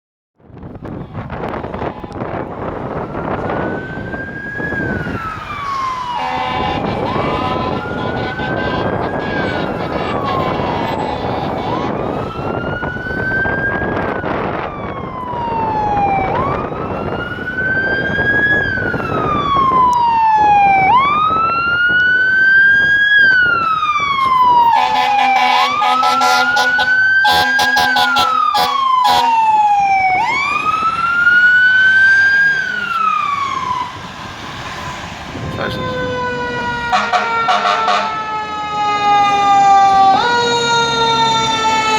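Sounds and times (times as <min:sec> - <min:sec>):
fire truck siren wailing: 0:00.4 - 0:41.9
truck engine and road noise: 0:00.4 - 0:41.9
truck horn: 0:06.1 - 0:12.0, 0:24.7 - 0:29.5, 0:36.9 - 0:38.2.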